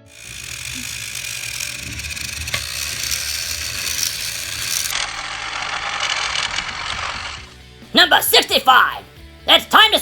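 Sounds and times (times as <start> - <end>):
gears and wheels rattling: 0.0 - 7.6
toy train motor whirring: 0.0 - 7.7.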